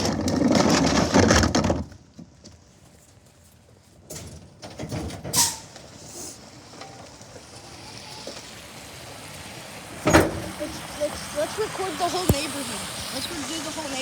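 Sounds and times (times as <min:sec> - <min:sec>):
garbage truck running: 0:04.2 - 0:14.0.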